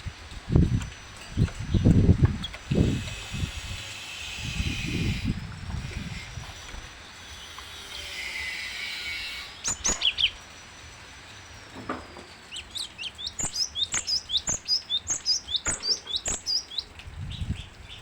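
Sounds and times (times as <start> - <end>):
bird high sharp notes: 7.6 - 10.4, 12.6 - 16.9.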